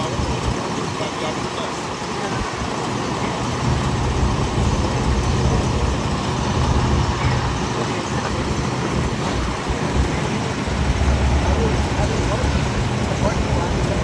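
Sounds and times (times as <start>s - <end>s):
low engine rumble: 0.0s - 14.0s
traffic hiss: 0.0s - 14.0s.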